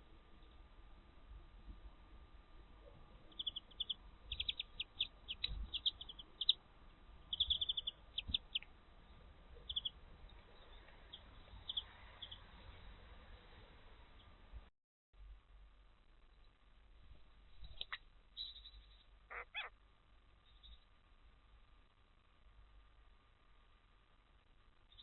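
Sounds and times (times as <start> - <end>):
songbirds high chirps: 3.2 - 12.8, 17.6 - 19.8, 20.4 - 20.9.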